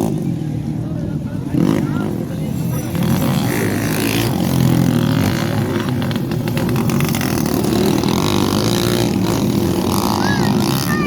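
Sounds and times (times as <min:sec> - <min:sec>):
motorcycles revving: 0:00.0 - 0:11.0.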